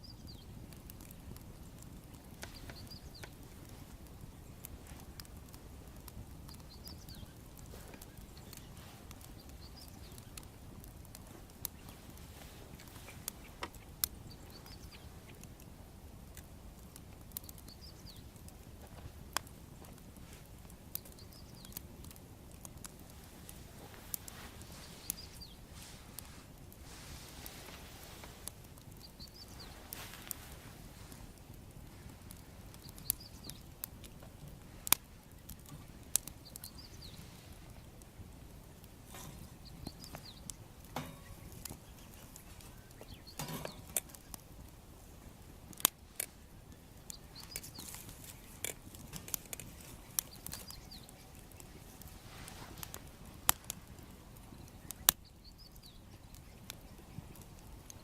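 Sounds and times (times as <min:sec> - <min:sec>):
faint bird chirps: 0:00.0 - 0:00.5, 0:02.4 - 0:03.4, 0:06.4 - 0:10.5, 0:11.6 - 0:15.4, 0:17.4 - 0:18.4, 0:20.9 - 0:21.8, 0:24.3 - 0:26.0, 0:29.0 - 0:30.3, 0:32.0 - 0:33.7, 0:35.2 - 0:37.8, 0:39.1 - 0:44.4, 0:46.4 - 0:48.6, 0:49.7 - 0:53.0, 0:54.4 - 0:57.5
wood fire crackling: 0:00.0 - 0:58.0.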